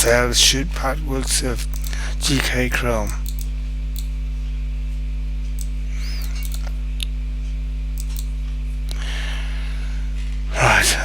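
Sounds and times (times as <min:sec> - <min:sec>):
electrical mains hum: 0:00.0 - 0:11.0
faint clicks: 0:01.7 - 0:04.1, 0:08.0 - 0:08.3.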